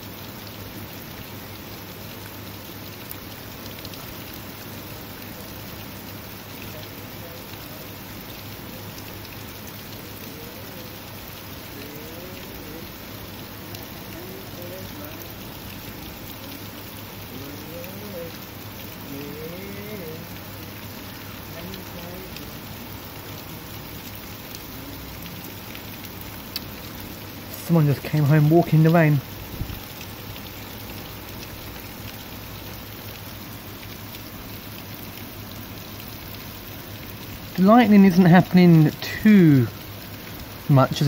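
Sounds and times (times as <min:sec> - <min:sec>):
heavy rain pattering: 0:00.0 - 0:41.0
faint wavering voice-like sound: 0:11.8 - 0:13.0, 0:17.3 - 0:18.4, 0:19.0 - 0:20.4.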